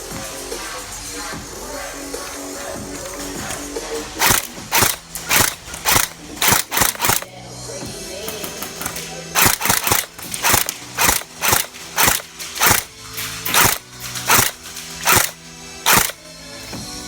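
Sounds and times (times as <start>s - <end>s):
quiet background music: 0.0s - 17.0s
airsoft gun shots: 4.2s - 7.3s, 8.8s - 12.9s, 13.5s - 16.2s.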